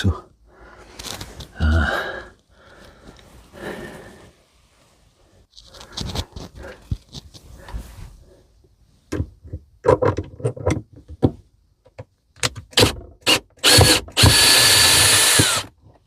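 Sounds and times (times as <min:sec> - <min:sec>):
handling clicks and knocks: 0:09.1 - 0:13.2
power drill motor whining: 0:13.2 - 0:15.7.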